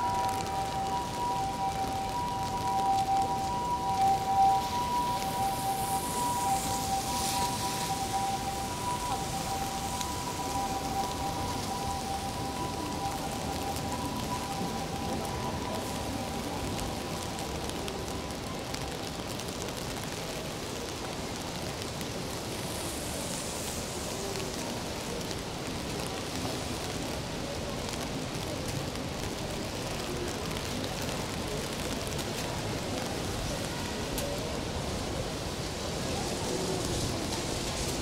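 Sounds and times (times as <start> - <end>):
faint voices of passers-by: 0.0 - 38.0
steady rain on street: 0.0 - 38.0.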